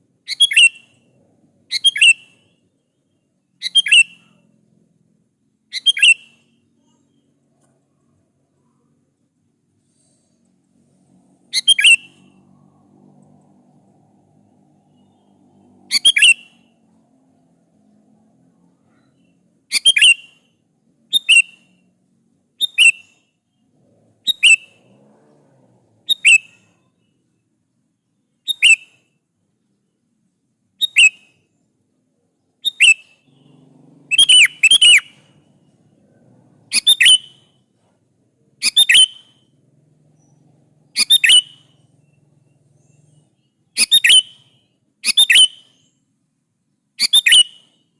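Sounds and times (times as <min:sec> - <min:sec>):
bulbul calling: 0:00.3 - 0:01.0, 0:11.5 - 0:12.4, 0:14.8 - 0:16.8, 0:19.2 - 0:20.5, 0:32.6 - 0:35.9, 0:36.7 - 0:37.6, 0:38.6 - 0:39.5, 0:40.2 - 0:46.0.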